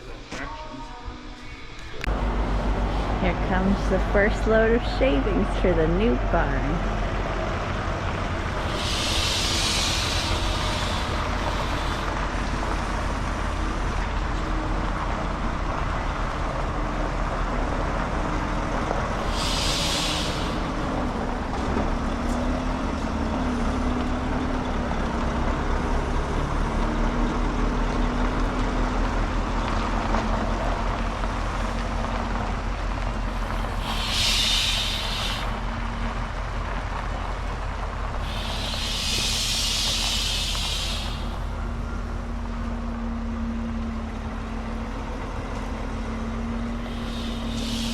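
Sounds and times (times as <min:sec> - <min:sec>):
truck diesel engine: 0:01.4 - 0:47.9
air brake hisses: 0:08.5 - 0:13.8, 0:19.2 - 0:20.8, 0:33.4 - 0:35.6, 0:38.2 - 0:41.5, 0:46.8 - 0:47.9.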